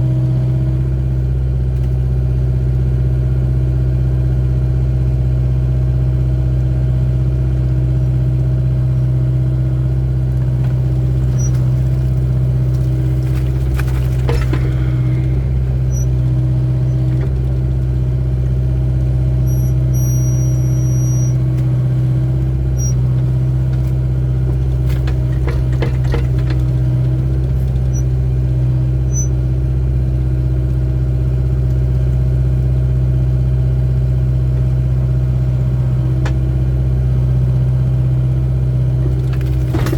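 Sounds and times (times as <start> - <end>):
diesel engine running: 0.0 - 39.9
metallic clanks of excavator bucket: 10.4 - 17.6, 22.7 - 28.2, 39.0 - 39.9
high squeal: 14.3 - 16.2, 19.4 - 21.5, 22.7 - 23.0, 29.0 - 29.4.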